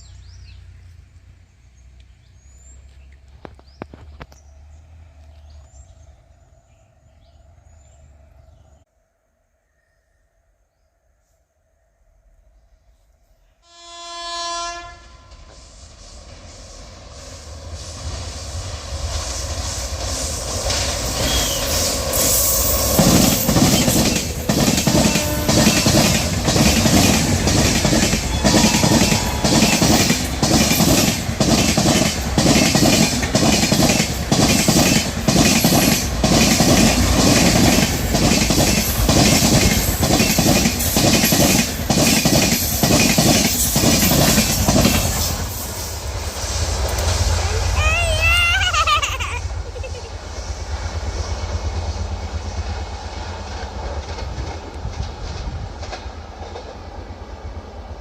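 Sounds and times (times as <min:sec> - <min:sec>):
train passing: 0:00.0 - 0:09.5, 0:11.2 - 0:58.0
train wheels clattering over rail joints: 0:19.1 - 0:46.0, 0:53.4 - 0:57.1.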